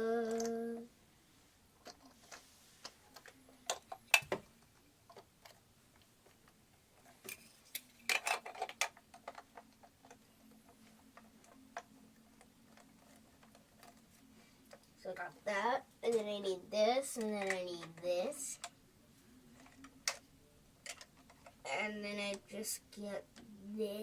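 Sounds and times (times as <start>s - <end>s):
plastic bricks clicking together: 7.2s - 10.2s, 20.8s - 21.6s.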